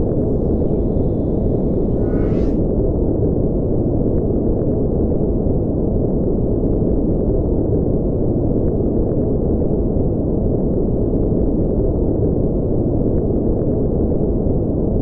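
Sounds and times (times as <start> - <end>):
deep low rumbling noise: 0.0 - 2.8.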